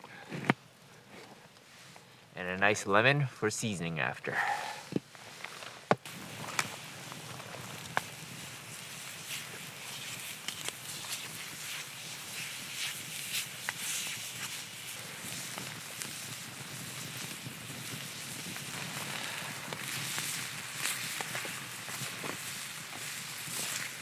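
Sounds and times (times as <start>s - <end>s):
campfire crackling: 0.0s - 24.0s
rain pattering on a tarp: 5.4s - 24.0s.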